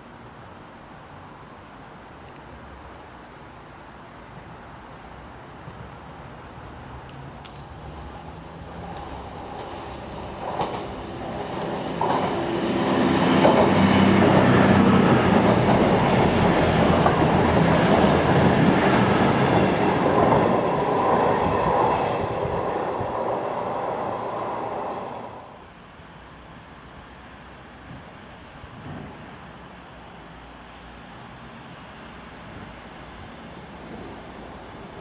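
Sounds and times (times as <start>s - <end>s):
train passing: 7.5s - 35.0s.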